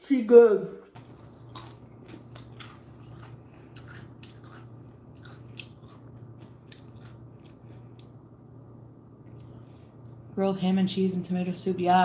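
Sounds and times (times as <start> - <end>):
person chewing a sandwich: 0.9 - 8.6, 9.2 - 10.2
low hum: 0.9 - 12.0.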